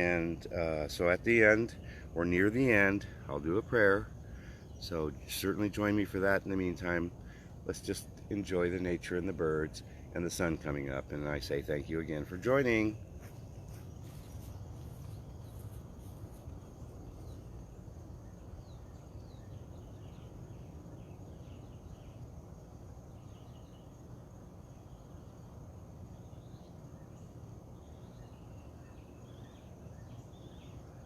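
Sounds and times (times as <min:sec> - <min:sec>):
low background hiss: 0:00.0 - 0:31.0
high-pitched insect trill: 0:08.4 - 0:31.0.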